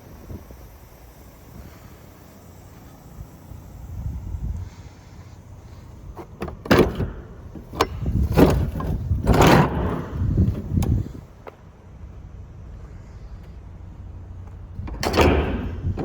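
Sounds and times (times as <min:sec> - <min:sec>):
truck door latch clicks and knocks: 0:06.2 - 0:11.1, 0:14.8 - 0:16.0.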